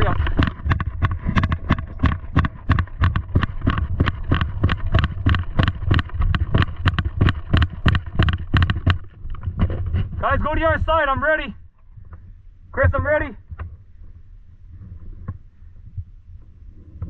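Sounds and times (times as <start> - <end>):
running footsteps: 0.0 - 12.1.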